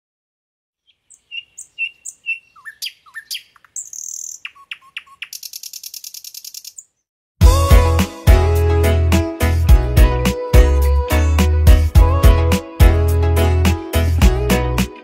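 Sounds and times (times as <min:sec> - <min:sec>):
high buzzy bird trill: 0:00.8 - 0:07.0
bird chirps: 0:00.8 - 0:07.1
bird whistled notes: 0:01.1 - 0:06.9.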